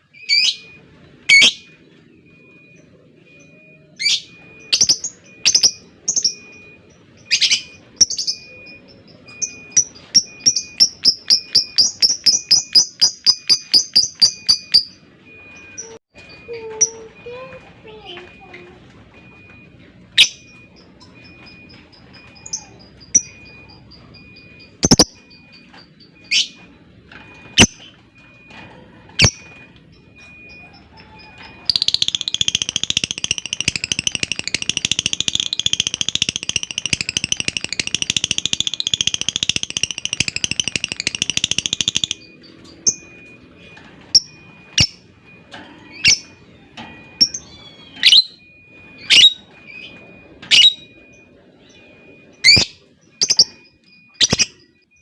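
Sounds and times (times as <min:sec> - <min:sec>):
lovebird chirping and trilling: 0:00.1 - 0:01.8, 0:03.4 - 0:15.0, 0:20.2 - 0:26.8, 0:27.6 - 0:27.9, 0:29.2 - 0:29.6, 0:30.3 - 0:43.2, 0:44.2 - 0:45.0, 0:45.9 - 0:46.4, 0:47.2 - 0:54.8.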